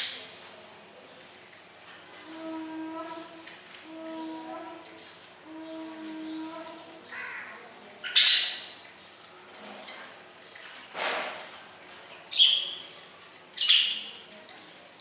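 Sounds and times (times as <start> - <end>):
bird squawking: 5.5 - 8.7.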